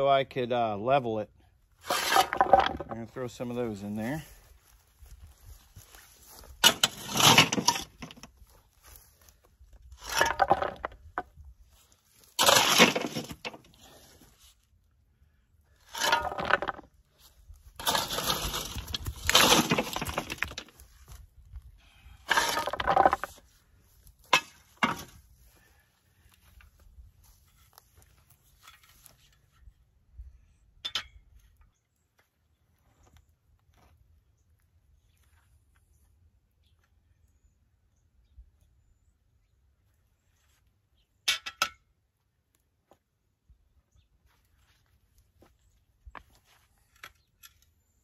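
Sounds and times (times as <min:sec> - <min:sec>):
rocks dropped into a hole: 0:01.9 - 0:03.0, 0:10.0 - 0:11.3, 0:15.9 - 0:16.9, 0:17.8 - 0:20.8, 0:22.3 - 0:23.4.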